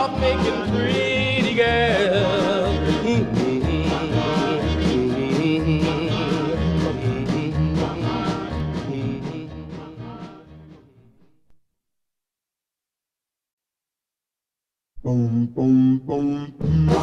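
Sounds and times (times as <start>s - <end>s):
doo-wop song with vocals: 0.0s - 10.8s, 15.0s - 17.0s.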